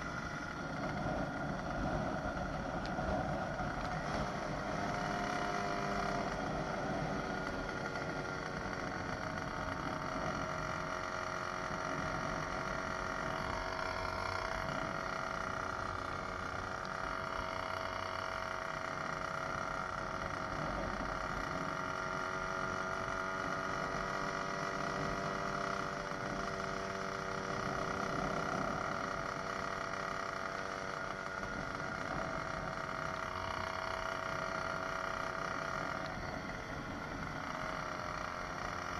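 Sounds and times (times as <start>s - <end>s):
two-stroke bicycle engine running: 0.0s - 38.9s.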